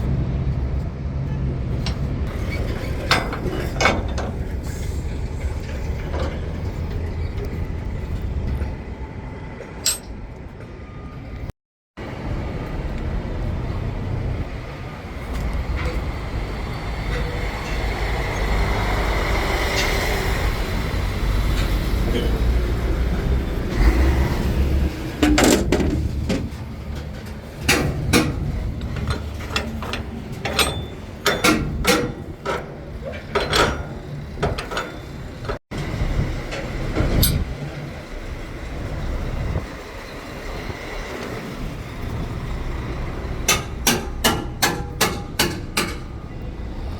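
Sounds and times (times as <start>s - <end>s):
truck diesel engine rumbling: 0.0s - 11.4s, 12.1s - 46.9s
sharp clanks and knocks: 1.8s - 7.6s, 9.6s - 10.2s, 24.9s - 35.6s, 36.4s - 37.6s, 43.4s - 46.4s.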